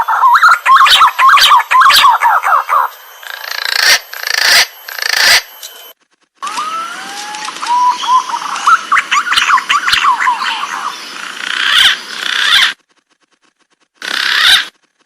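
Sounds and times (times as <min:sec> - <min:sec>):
pigeons whistling calls: 0:00.0 - 0:05.7, 0:06.4 - 0:11.0.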